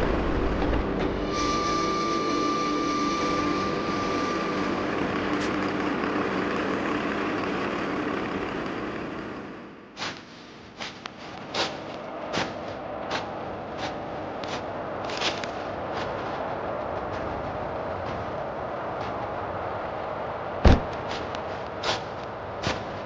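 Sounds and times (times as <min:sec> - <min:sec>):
thin high whine: 0:00.0 - 0:09.6
vehicle engine running: 0:03.4 - 0:09.7.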